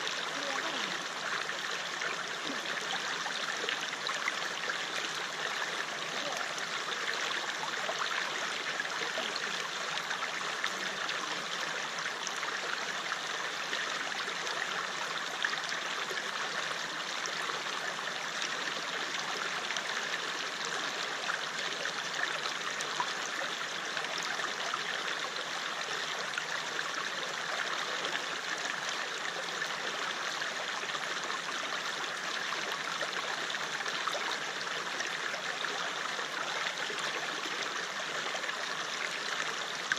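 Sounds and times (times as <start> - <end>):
water trickling over stones: 0.0 - 15.0.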